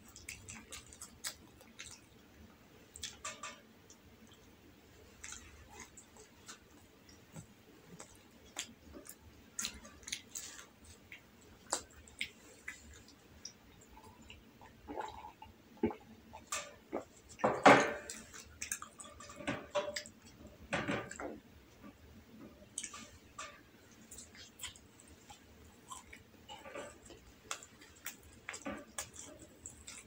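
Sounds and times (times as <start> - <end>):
soft chewing: 0.0 - 30.0
mouth clicks and smacks: 2.9 - 4.5, 5.2 - 17.1
swallowing: 13.8 - 16.1.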